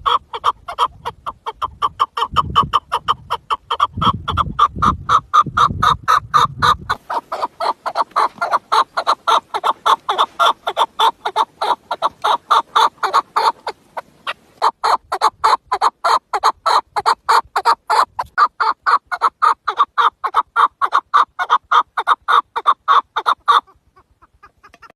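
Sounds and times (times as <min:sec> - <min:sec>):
partridge clucking: 0:00.0 - 0:14.8, 0:24.4 - 0:24.9.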